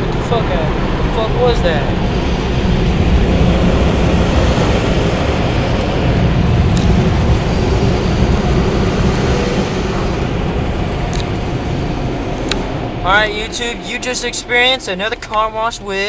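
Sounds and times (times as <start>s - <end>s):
car wash machinery rushing: 0.0s - 16.0s.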